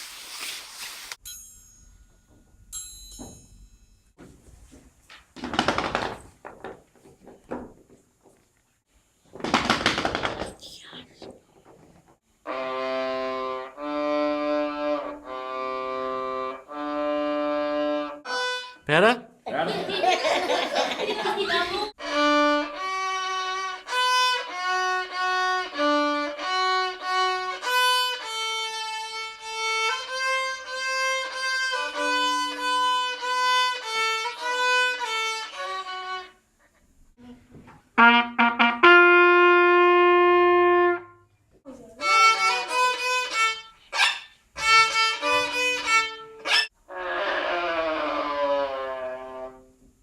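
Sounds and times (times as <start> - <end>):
violin melody: 12.4 - 18.9, 22.0 - 36.4, 42.0 - 43.8, 44.6 - 49.8.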